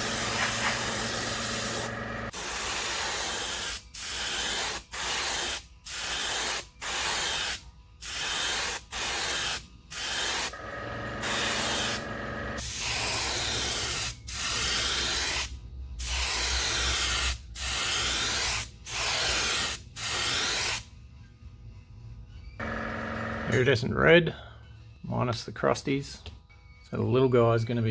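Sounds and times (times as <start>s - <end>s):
airbrush spraying hissing bursts: 0.0s - 10.5s, 11.2s - 20.8s.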